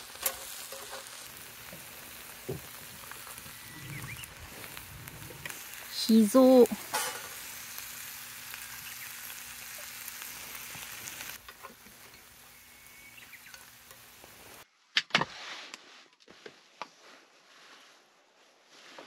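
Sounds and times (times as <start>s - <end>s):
chopsticks stirring food: 0.0s - 1.3s
food sizzling in a pan: 0.0s - 14.6s.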